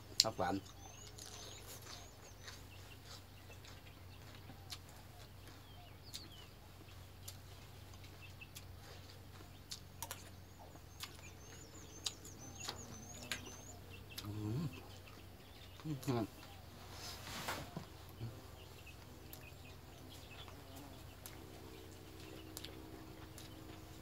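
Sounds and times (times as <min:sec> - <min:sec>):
small birds chirping: 0:00.0 - 0:24.0
man murmuring: 0:14.2 - 0:14.9.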